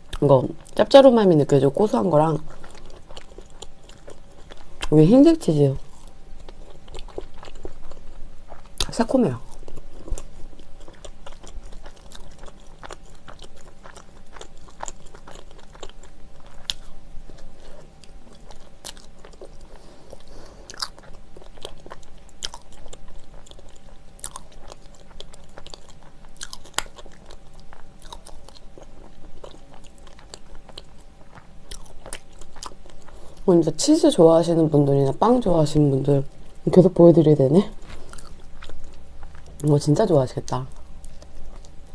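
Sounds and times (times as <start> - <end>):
person chewing bread: 1.9 - 33.5, 37.6 - 39.8, 40.5 - 41.9.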